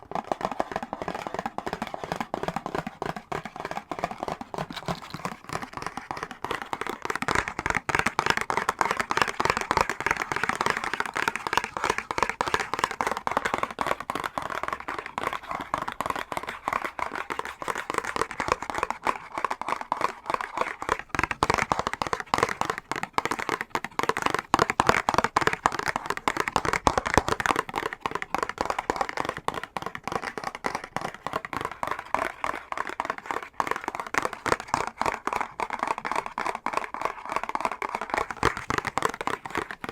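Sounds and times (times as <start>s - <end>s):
fingernails tapping and scratching box: 0.1s - 39.9s.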